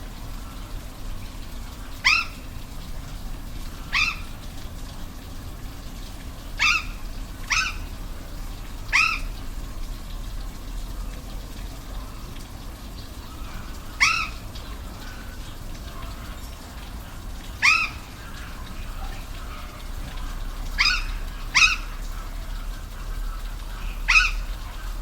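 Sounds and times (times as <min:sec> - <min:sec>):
waterfall rushing: 0:00.0 - 0:25.0
animal calling sharp cries: 0:01.9 - 0:02.6, 0:03.8 - 0:04.4, 0:06.6 - 0:08.0, 0:08.9 - 0:09.4, 0:13.3 - 0:15.2, 0:17.5 - 0:22.2, 0:23.7 - 0:24.8.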